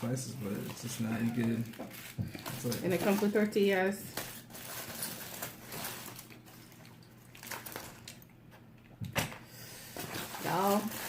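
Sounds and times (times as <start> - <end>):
low room hum: 0.0 - 11.0
soft handling rustles: 0.1 - 8.1.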